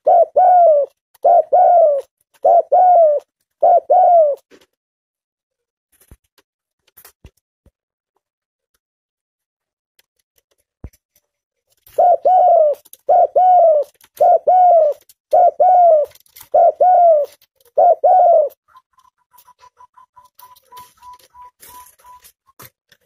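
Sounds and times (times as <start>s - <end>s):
dove cooing: 0.0s - 4.4s, 11.9s - 22.3s.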